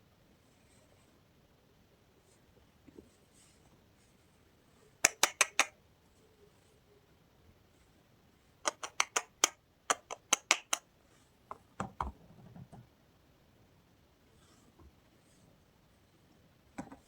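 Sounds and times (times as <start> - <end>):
packaging crisp clicks: 8.7 - 10.8.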